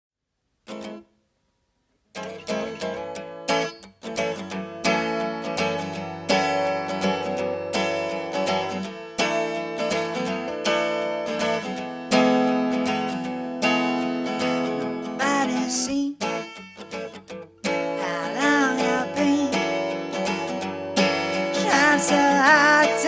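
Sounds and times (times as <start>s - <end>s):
acoustic guitar strumming chords: 2.1s - 23.0s.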